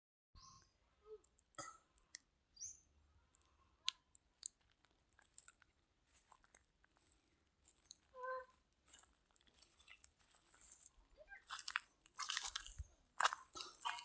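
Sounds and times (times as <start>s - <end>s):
faint clicks and ticks: 1.2s - 2.3s, 3.3s - 11.0s.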